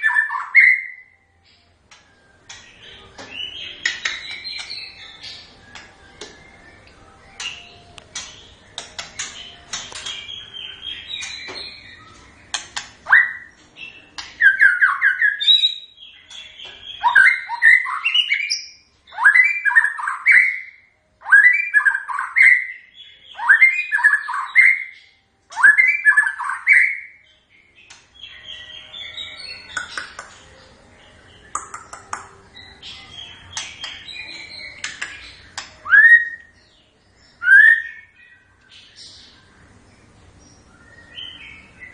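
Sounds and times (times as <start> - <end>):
songbird whistling and chattering: 0.0 - 1.2, 2.4 - 27.2, 31.4 - 36.6, 37.3 - 39.1.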